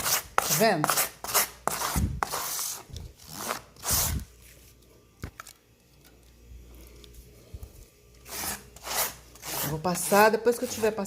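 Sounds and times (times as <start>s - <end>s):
spatula scraping putty on cardboard: 0.0s - 4.2s, 8.2s - 11.0s.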